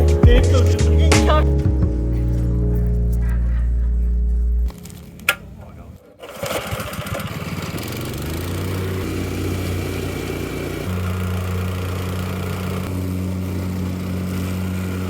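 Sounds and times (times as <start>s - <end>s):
plate compactor engine running: 5.6s - 15.0s.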